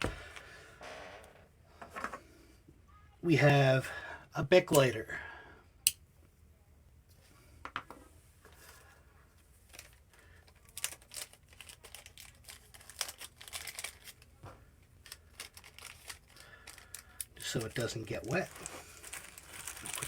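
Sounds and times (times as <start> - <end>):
plastic bag crinkling: 9.6 - 14.4, 15.0 - 20.0.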